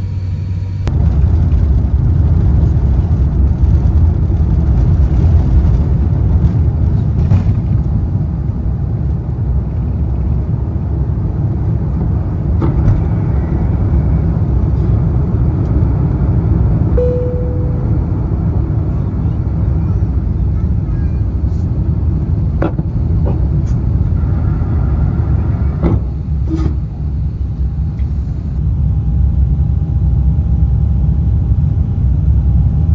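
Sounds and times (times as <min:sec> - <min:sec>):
airliner cabin engine rumble: 0:00.0 - 0:32.9
short steady tone: 0:17.0 - 0:18.8.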